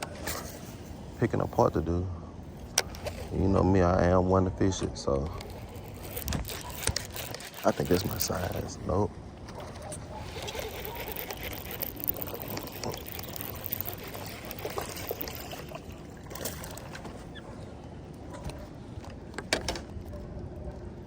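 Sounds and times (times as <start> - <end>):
water splashing and trickling: 5.4 - 19.1.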